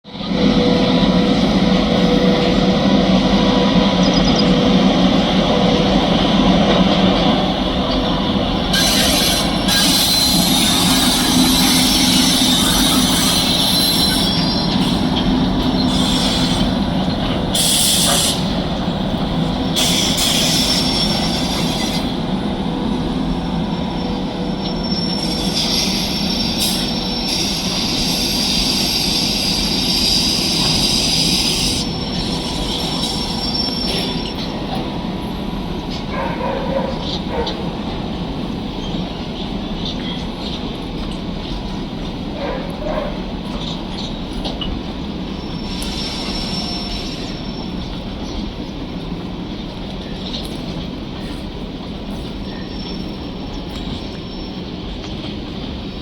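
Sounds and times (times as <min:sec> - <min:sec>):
train wheels rumbling on rail: 0:00.0 - 0:56.0
high-pitched wheel squeal: 0:08.7 - 0:18.6, 0:45.4 - 0:47.8.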